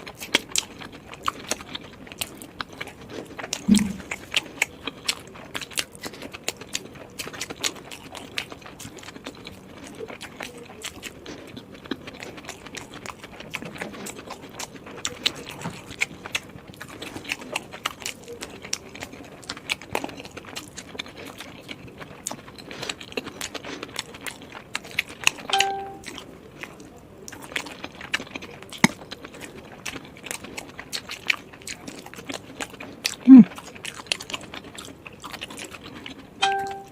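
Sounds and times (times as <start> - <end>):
person chewing: 0.0 - 36.9
wet mouth clicks and smacks: 3.6 - 4.3.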